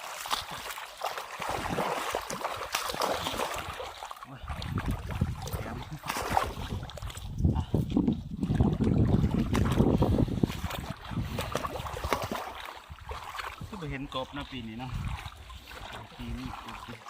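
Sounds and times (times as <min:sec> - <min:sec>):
wind rumbling on microphone: 0:03.1 - 0:16.9.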